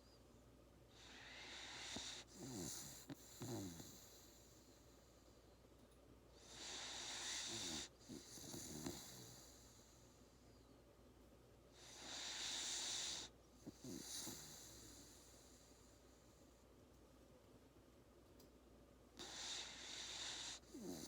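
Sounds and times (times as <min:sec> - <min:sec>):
puppy snoring: 0:00.9 - 0:05.0, 0:06.4 - 0:10.2, 0:11.7 - 0:16.4, 0:19.2 - 0:21.0.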